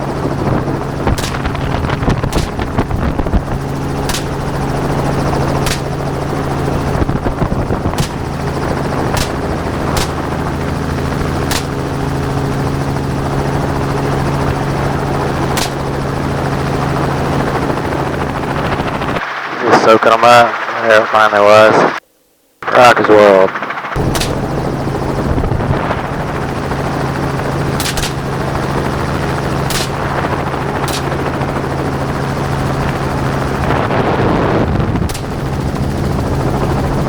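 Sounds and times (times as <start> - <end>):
helicopter flying: 0.0 - 22.0, 22.6 - 37.0
gunshots: 1.1 - 6.5, 7.9 - 10.5, 11.4 - 12.0, 15.5 - 16.0, 24.0 - 24.6, 27.8 - 28.3, 29.7 - 31.3, 35.1 - 35.4.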